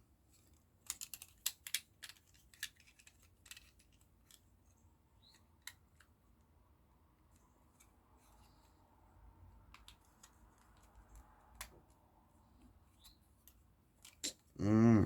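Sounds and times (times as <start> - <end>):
plastic parts clicking: 0.8 - 4.4.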